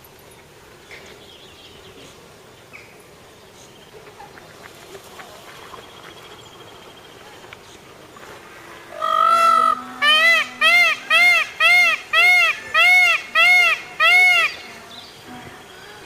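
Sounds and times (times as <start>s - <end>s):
insects buzzing: 7.6s - 16.0s.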